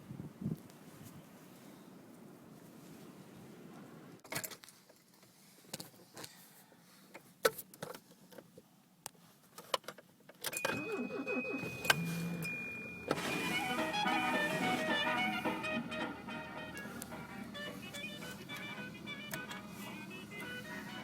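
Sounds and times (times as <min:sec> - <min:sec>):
car keys jangling: 0:10.4 - 0:13.9
low whirring: 0:11.4 - 0:21.0.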